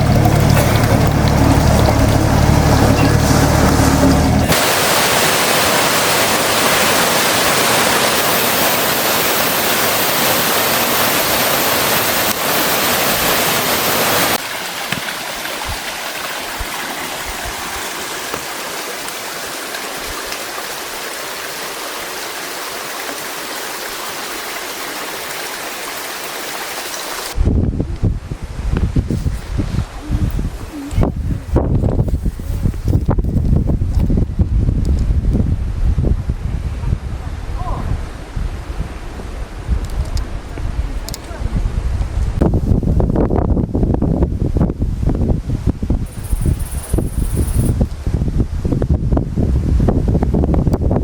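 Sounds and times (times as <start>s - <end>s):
low hum: 0.0s - 4.7s
mountain stream rushing: 0.0s - 27.5s.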